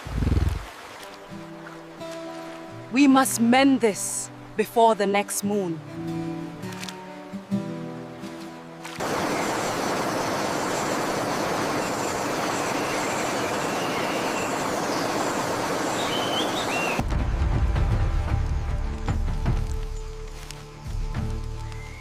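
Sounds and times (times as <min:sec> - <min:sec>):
music: 0:01.0 - 0:09.0, 0:17.0 - 0:22.0.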